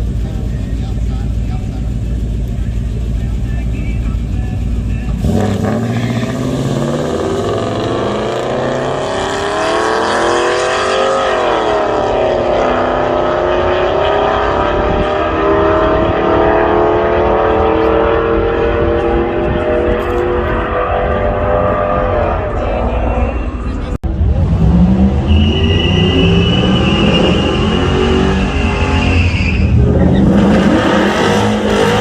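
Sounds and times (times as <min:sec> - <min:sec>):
engine revving at full throttle: 0:05.1 - 0:22.4, 0:24.1 - 0:29.1, 0:29.7 - 0:32.0.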